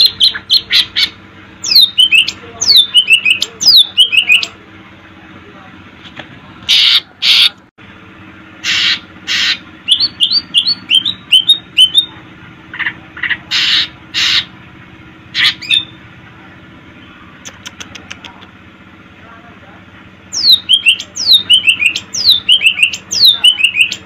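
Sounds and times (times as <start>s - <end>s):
bird harsh rasping calls: 0.0s - 4.6s, 6.7s - 7.6s, 8.6s - 14.6s, 15.3s - 16.0s, 20.3s - 24.0s.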